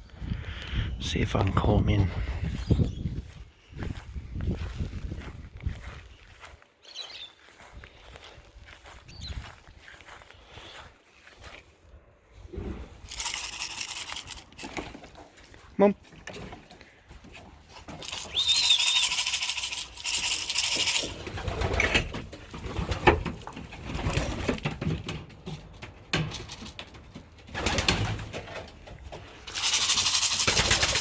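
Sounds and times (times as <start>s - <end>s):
rustling noise: 12.4s - 15.7s, 17.2s - 24.6s, 29.1s - 31.0s
pigeons cooing: 17.8s - 22.2s.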